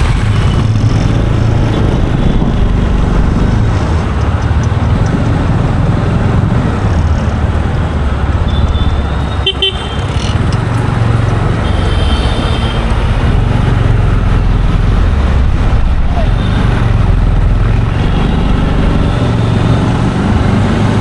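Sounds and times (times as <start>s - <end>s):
low rumble of traffic: 0.0s - 21.0s
car horns honking: 8.5s - 10.4s, 11.6s - 13.0s.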